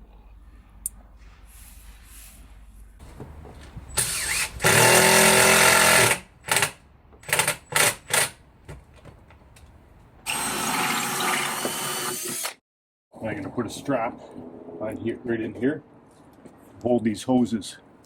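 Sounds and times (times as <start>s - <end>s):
electric drill running: 4.0s - 6.7s, 10.3s - 12.6s.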